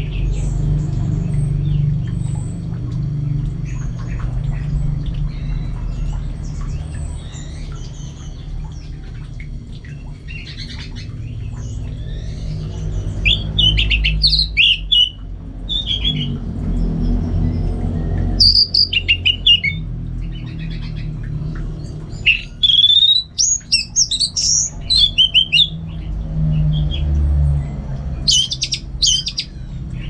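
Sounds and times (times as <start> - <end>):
steady low hum: 0.0 - 30.0
thrush singing chirps and whistles: 12.0 - 16.3, 18.0 - 19.8, 22.2 - 25.8, 28.2 - 30.0.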